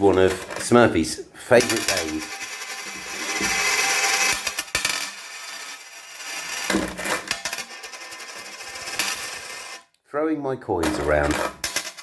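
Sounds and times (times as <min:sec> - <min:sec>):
coins clinking and clattering: 0:01.6 - 0:09.8, 0:11.0 - 0:12.0.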